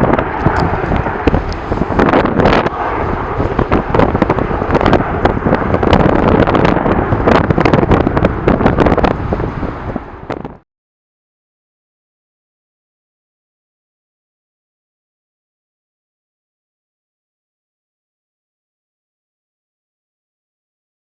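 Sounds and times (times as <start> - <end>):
strong wind buffeting microphone: 0.0 - 10.6.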